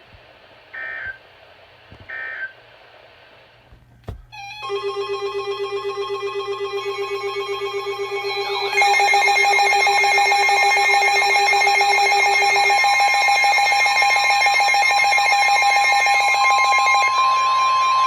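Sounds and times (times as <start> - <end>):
steady alarm tones: 4.1 - 18.0
rapidly pulsing alarm tone: 4.4 - 18.0.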